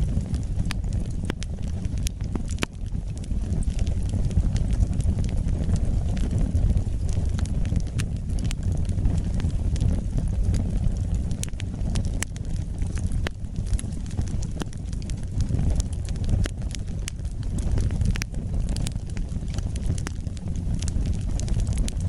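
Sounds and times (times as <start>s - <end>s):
fire crackling and popping: 0.0s - 22.0s
low rumble of flames: 0.0s - 22.0s.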